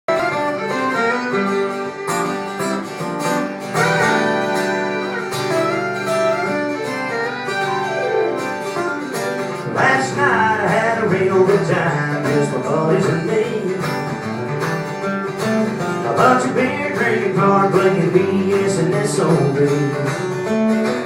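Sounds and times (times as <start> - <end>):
country band with guitars: 0.1 - 21.0.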